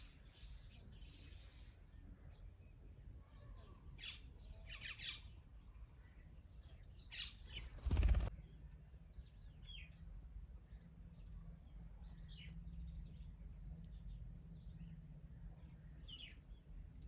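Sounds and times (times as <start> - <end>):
birds calling: 7.2 - 8.3.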